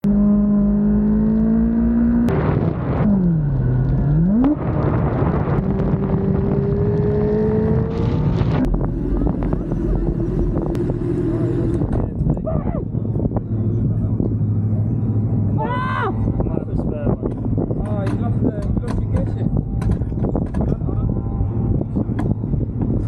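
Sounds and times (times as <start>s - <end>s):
motorcycle engine running hard: 4.6s - 23.0s.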